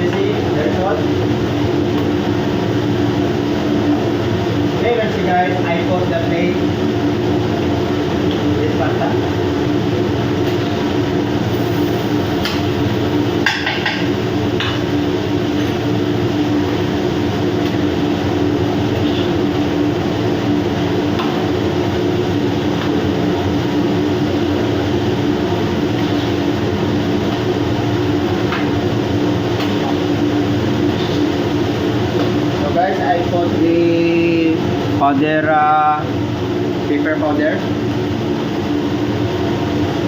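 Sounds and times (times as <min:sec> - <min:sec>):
machinery drone: 0:09.1 - 0:34.8.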